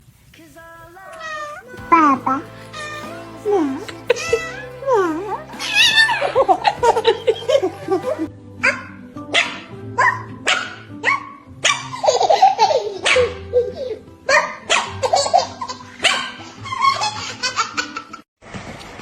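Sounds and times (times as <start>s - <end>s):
background music: 0.4s - 18.0s
dog barking: 8.6s - 12.0s, 13.0s - 13.4s, 14.3s - 15.0s, 16.0s - 16.4s.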